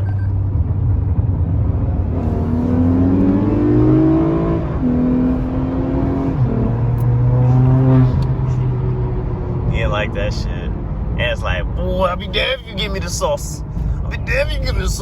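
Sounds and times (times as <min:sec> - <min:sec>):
car engine accelerating hard: 0:00.0 - 0:11.9.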